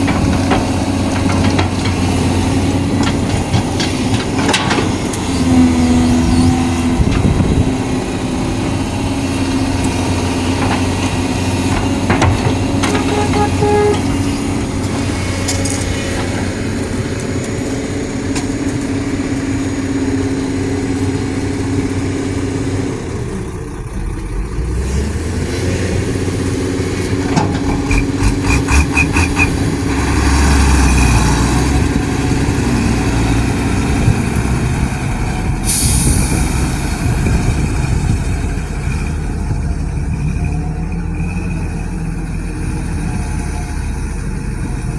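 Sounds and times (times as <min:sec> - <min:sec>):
excavator diesel engine running: 0:00.0 - 0:44.9
metallic knocks: 0:11.7 - 0:14.4.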